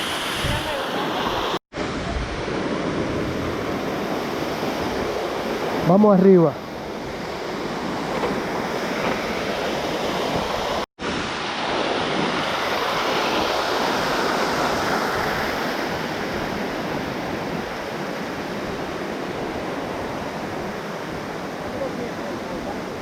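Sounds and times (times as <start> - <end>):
rushing waterfall: 9.8 - 16.8, 18.8 - 23.0.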